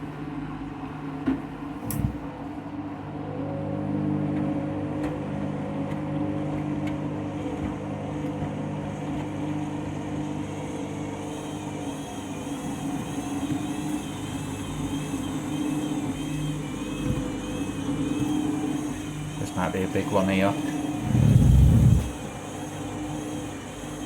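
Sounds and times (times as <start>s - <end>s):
washing machine motor hum: 0.0s - 24.0s.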